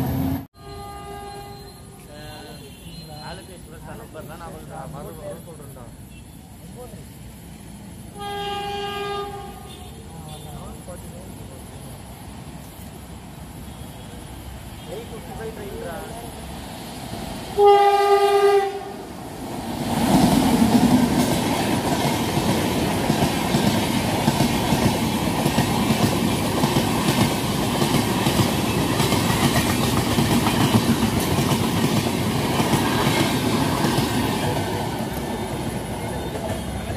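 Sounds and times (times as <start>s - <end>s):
locomotive horn: 0.2s - 3.2s, 8.2s - 10.6s, 17.6s - 19.0s
train wheels rumbling and clattering: 19.2s - 36.9s.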